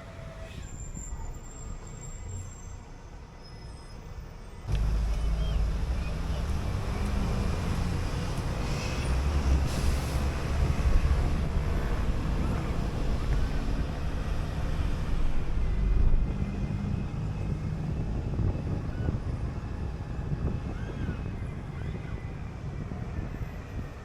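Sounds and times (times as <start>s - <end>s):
bus engine drone: 0.0s - 24.0s
road and wind noise: 0.0s - 24.0s.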